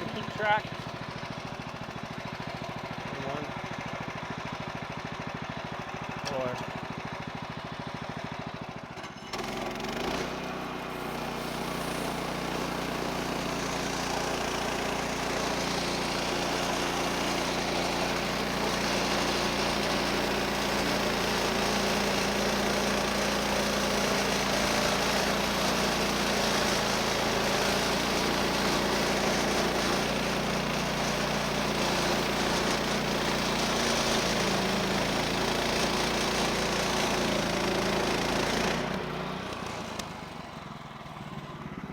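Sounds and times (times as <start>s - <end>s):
sawmill engine running: 0.0s - 41.9s
band blade cutting log: 9.3s - 40.3s.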